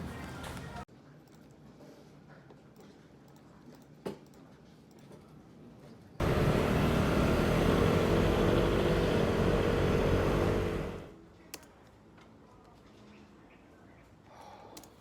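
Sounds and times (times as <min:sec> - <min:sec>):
motor machine whirring: 0:06.2 - 0:11.1.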